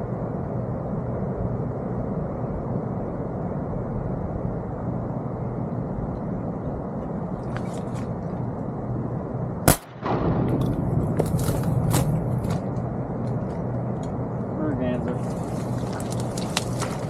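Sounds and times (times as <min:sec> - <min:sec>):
low motor hum: 0:00.0 - 0:17.0
shotgun shot: 0:09.7 - 0:12.5.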